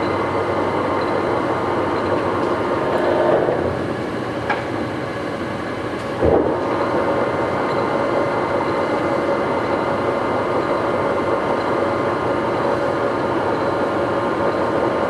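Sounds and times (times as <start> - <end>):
lathe machine hum: 0.0 - 4.4.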